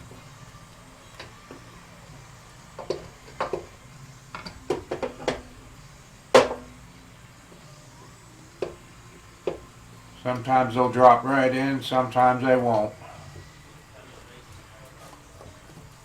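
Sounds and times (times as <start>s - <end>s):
metal clunks and knocks: 2.8s - 5.5s, 6.3s - 6.8s, 9.4s - 9.7s
loud metal clunk with ring: 6.4s - 6.8s.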